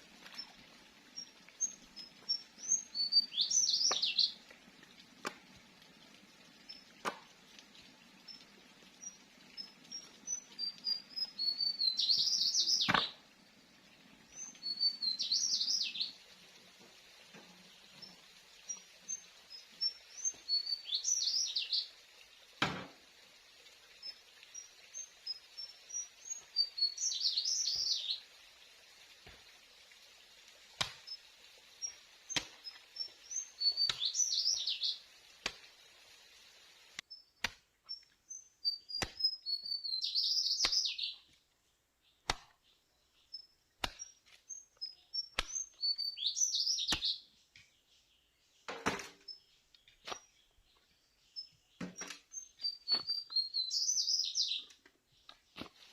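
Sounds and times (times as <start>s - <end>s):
songbird singing: 0.2s - 4.5s, 8.1s - 16.2s, 17.9s - 22.0s, 23.9s - 28.3s, 31.0s - 35.1s, 37.0s - 55.9s
thin high chirps: 31.8s - 35.0s, 37.1s - 41.2s, 43.3s - 47.2s, 51.4s - 54.7s.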